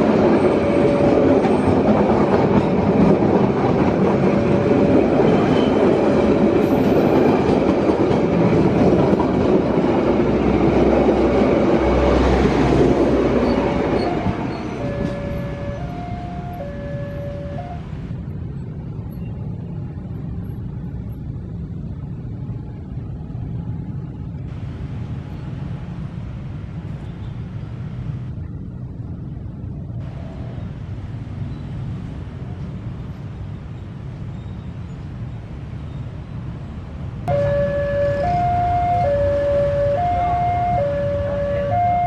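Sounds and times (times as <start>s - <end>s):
road traffic rumble: 0.0s - 42.0s
two-tone crossing alarm: 13.3s - 18.1s, 37.3s - 42.0s.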